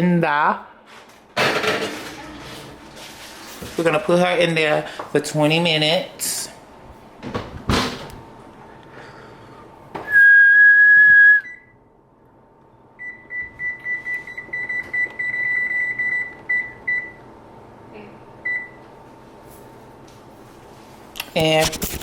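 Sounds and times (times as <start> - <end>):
oven control panel beeping: 13.0 - 17.3.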